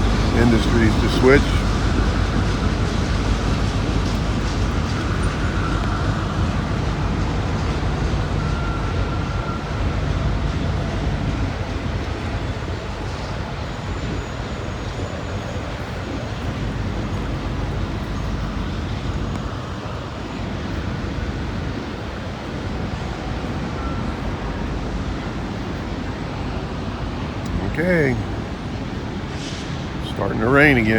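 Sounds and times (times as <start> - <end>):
freight train rumbling past: 0.0 - 30.9.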